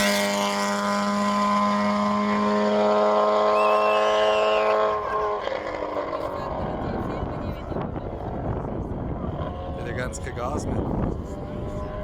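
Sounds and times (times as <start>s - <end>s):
racing car engine revving: 0.0s - 7.0s.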